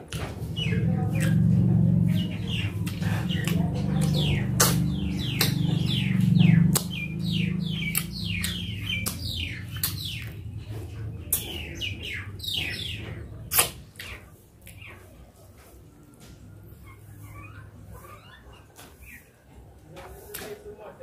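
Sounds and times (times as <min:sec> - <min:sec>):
low hum: 0:00.2 - 0:13.9
wet chewing and lip-smacking: 0:02.6 - 0:05.8, 0:06.6 - 0:07.1, 0:07.8 - 0:11.6, 0:13.5 - 0:14.9.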